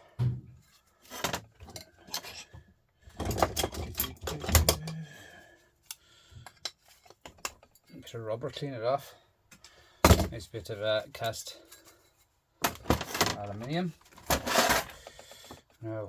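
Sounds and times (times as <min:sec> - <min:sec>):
metal parts and tools clinking: 0:01.0 - 0:05.1, 0:11.2 - 0:15.0.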